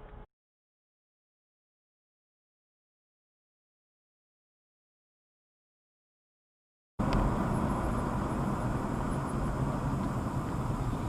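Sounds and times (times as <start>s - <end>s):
car engine and tyre noise: 7.0s - 11.0s.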